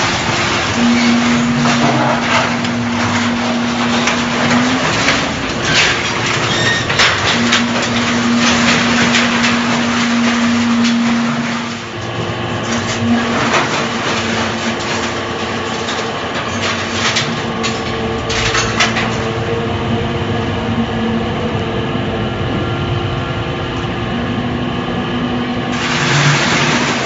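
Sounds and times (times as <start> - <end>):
metal scraps clanking: 0.0 - 19.5, 25.7 - 27.0
machine motor hum: 0.0 - 27.0.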